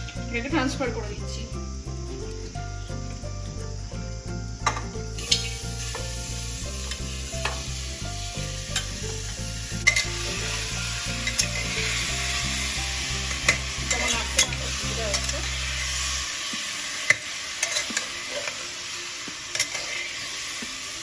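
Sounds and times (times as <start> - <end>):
chicken and vegetables sizzling: 0.0 - 21.0.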